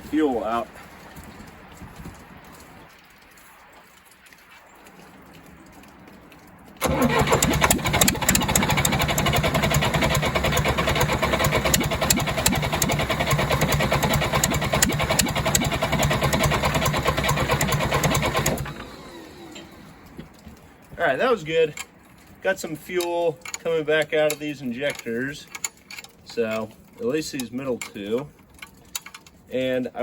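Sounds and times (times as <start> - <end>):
diesel engine cranking by starter: 6.8 - 20.2.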